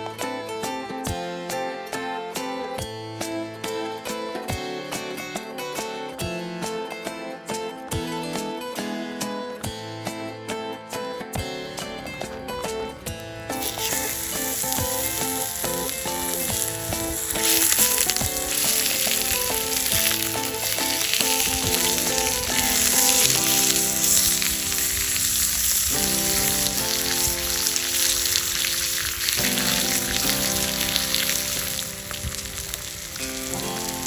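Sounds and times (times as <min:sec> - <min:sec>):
background music: 0:00.0 - 0:34.0
food sizzling in a pan: 0:13.5 - 0:34.0.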